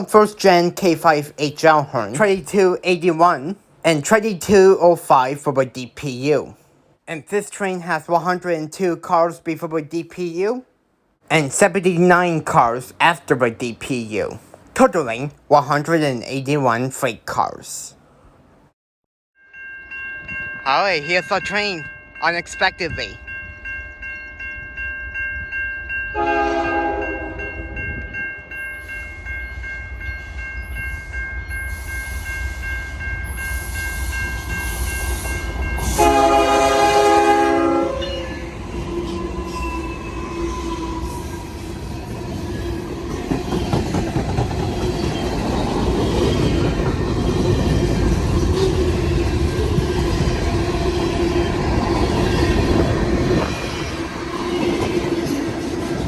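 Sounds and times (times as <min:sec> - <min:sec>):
crossing bell ringing: 0:19.4 - 0:41.7
freight train rumbling past: 0:26.1 - 0:56.0
locomotive air horn blasts: 0:26.2 - 0:27.5, 0:35.8 - 0:38.3
train wheel clatter: 0:42.1 - 0:50.7.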